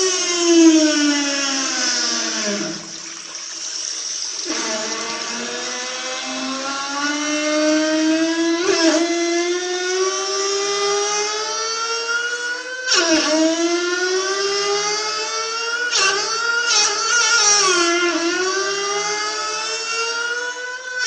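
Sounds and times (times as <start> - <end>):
water tap whining: 0.0 - 7.2.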